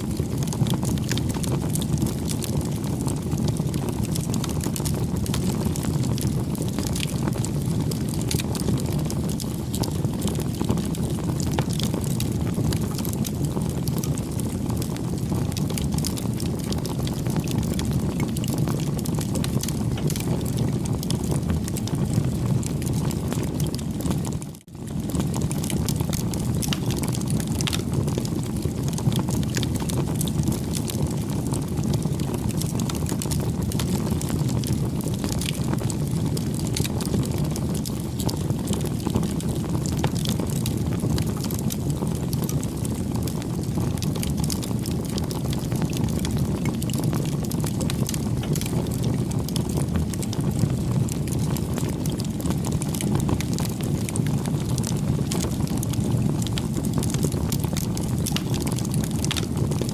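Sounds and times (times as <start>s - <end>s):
campfire flames crackling: 0.0s - 59.9s.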